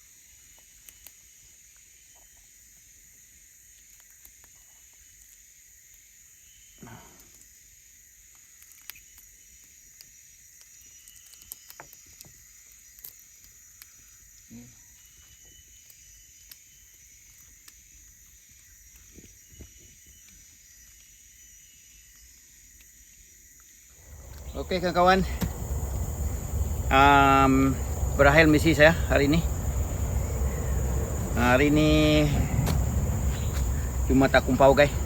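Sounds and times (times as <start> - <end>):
high-pitched insect chorus: 4.7 - 35.0
low thuds: 24.0 - 35.0.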